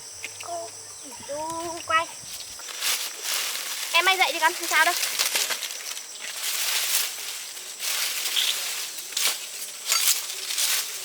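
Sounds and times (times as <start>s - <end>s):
rustling and crunching: 1.5s - 11.0s
sharp crackles: 2.7s - 11.0s.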